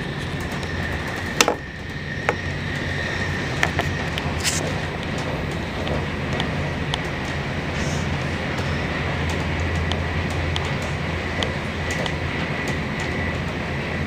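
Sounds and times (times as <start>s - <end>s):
train wheel clicks and knocks: 0.0s - 7.6s, 8.2s - 13.7s
train rumble inside carriage: 0.0s - 14.0s.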